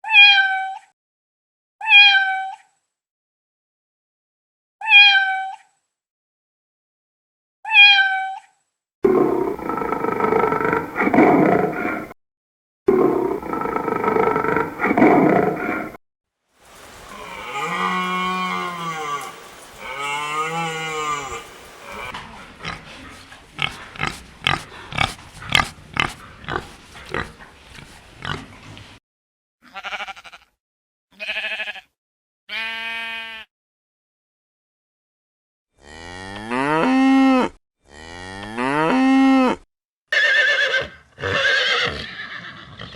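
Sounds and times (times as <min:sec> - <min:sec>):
rough roar-like animal call: 0:09.0 - 0:12.2, 0:12.9 - 0:16.0, 0:17.0 - 0:29.0.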